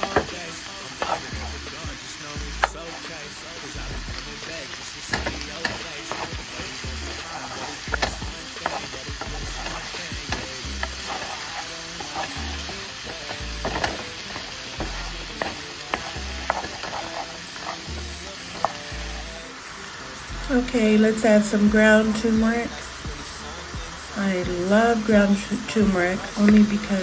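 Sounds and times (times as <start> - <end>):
vegetables sizzling in frying pan: 0.0 - 27.0
wooden spoon scraping pan: 1.0 - 1.8, 5.1 - 18.8.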